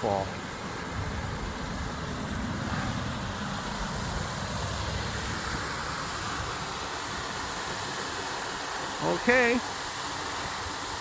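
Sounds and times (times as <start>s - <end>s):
waterfall rushing: 0.0s - 11.0s
low rumble: 0.8s - 7.2s.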